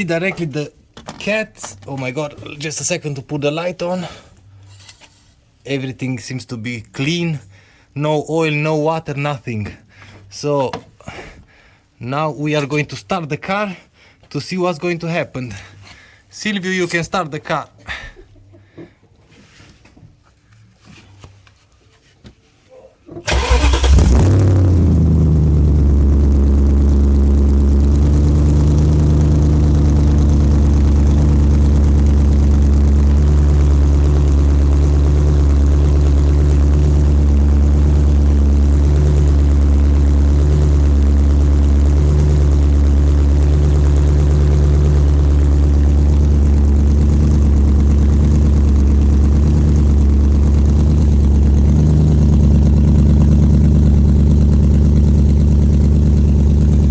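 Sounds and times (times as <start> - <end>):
car engine starting and idling: 23.2 - 56.9.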